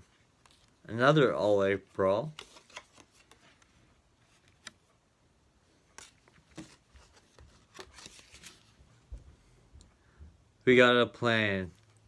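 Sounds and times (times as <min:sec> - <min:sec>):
cards tapping and rustling: 0:02.2 - 0:04.8, 0:05.9 - 0:08.8.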